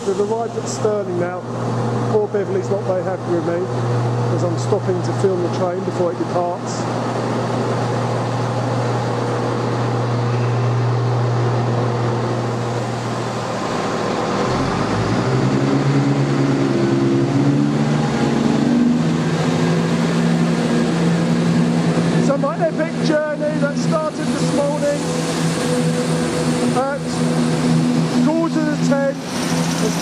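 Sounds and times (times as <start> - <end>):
diesel train engines idling: 0.0 - 30.0
train engine revving pulling away: 12.2 - 22.3.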